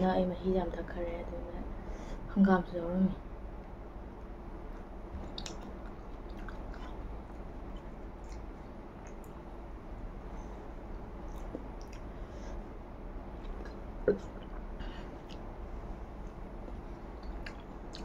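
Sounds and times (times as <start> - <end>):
person chewing food: 4.6 - 9.5, 10.9 - 12.3, 13.3 - 15.6, 16.3 - 18.0.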